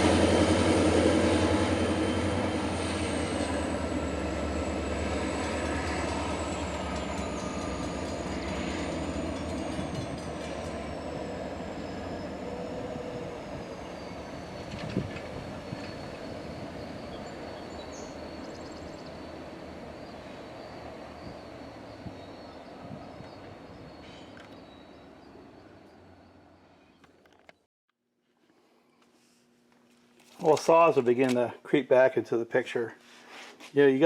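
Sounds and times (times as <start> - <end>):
train wheel squeal: 0.0 - 27.0
diesel locomotive rumble: 0.0 - 27.6.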